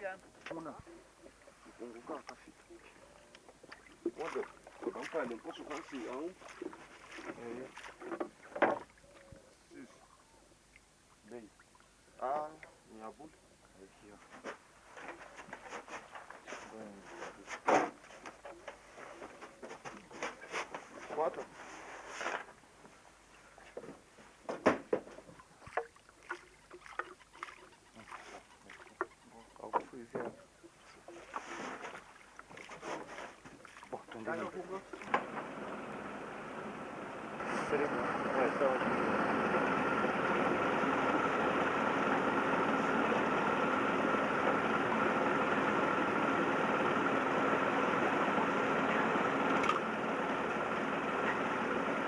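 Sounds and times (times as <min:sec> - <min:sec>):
outboard motor running: 0:00.0 - 0:52.0
paddle splashing water: 0:00.0 - 0:52.0
knocks on wooden boat: 0:08.0 - 0:08.9, 0:23.9 - 0:25.9.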